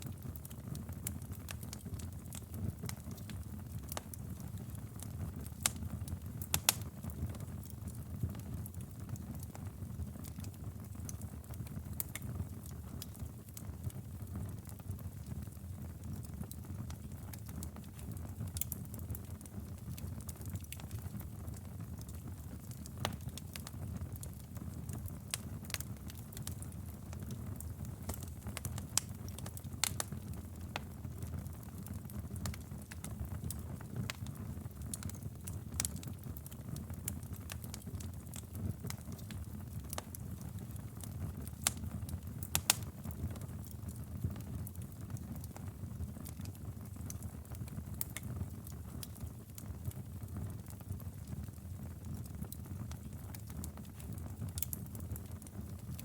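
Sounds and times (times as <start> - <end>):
fire crackling and popping: 0.0 - 56.0
wood fire burning: 0.0 - 56.0.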